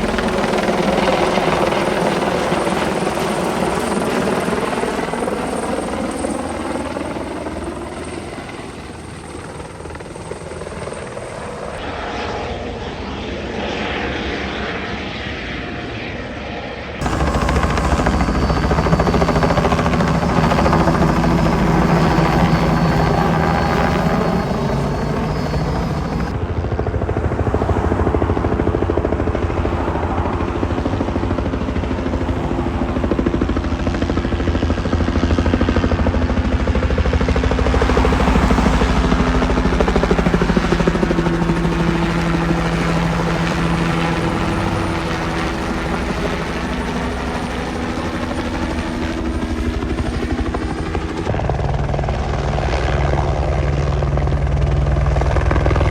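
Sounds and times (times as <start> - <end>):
helicopter rotor chop: 0.0 - 14.3, 17.0 - 55.9
steady high whine: 17.0 - 27.4, 28.2 - 51.4.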